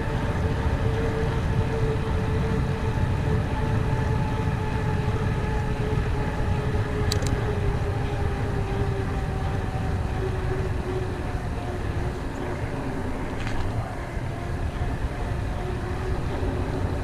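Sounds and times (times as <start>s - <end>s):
bike tyres rumbling on trail: 0.0s - 17.0s
steady hum: 0.0s - 17.0s
wind on camera: 0.0s - 17.0s
sharp clicks: 7.1s - 7.4s.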